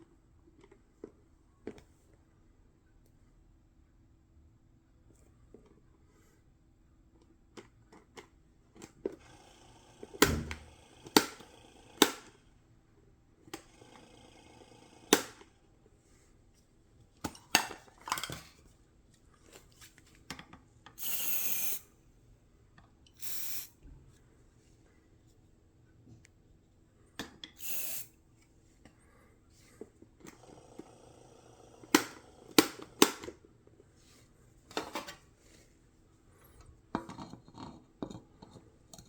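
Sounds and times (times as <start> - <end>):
aerosol spray hiss: 21.0 - 21.8, 23.2 - 23.7, 27.6 - 28.1.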